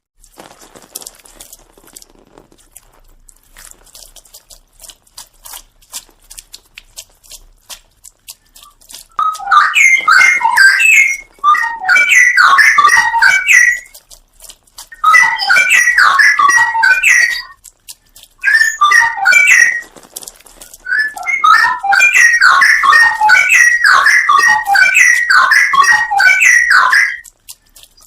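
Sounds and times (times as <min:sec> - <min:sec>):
bird singing warbled song: 0:09.2 - 0:14.0, 0:15.0 - 0:17.5, 0:18.4 - 0:19.9, 0:20.9 - 0:27.2.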